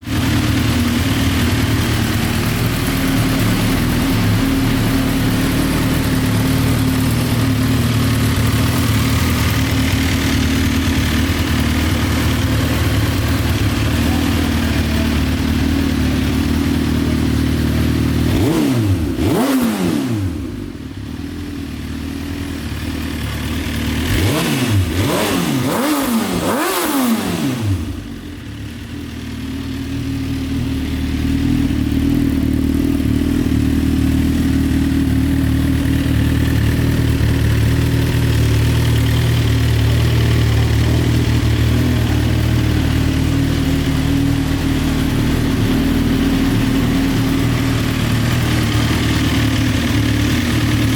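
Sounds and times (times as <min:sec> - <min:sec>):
motorcycle engine idling and revving: 0:00.0 - 0:50.9.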